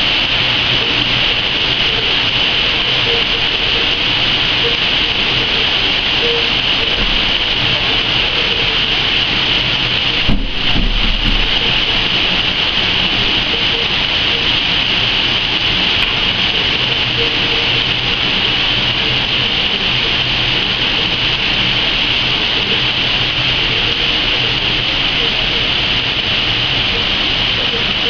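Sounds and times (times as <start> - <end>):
heavy rain pouring: 0.0 - 28.0
low thump: 10.2 - 11.6.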